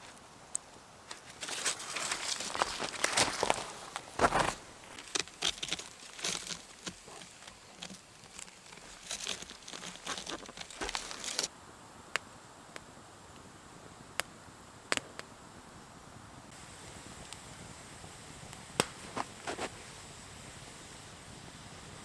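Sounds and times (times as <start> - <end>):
rustling and crinkling handling: 1.1 - 11.5.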